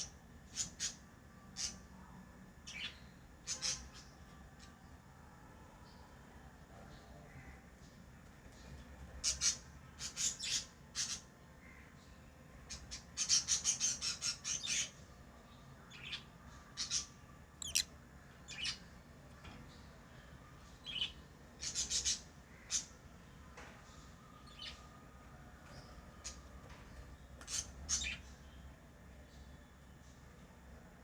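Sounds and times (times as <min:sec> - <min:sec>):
lovebirds chirping and squawking: 0:17.6 - 0:17.9.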